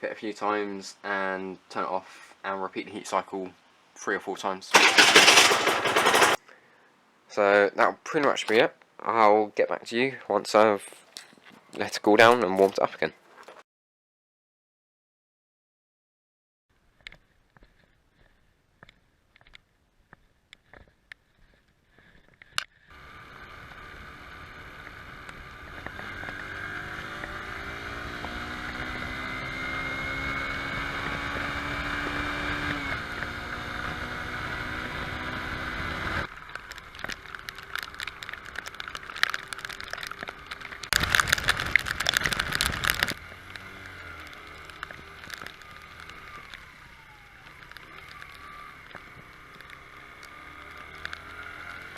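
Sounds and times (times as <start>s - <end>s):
loud noise: 4.7s - 6.4s
two-stroke engine running: 4.7s - 6.4s.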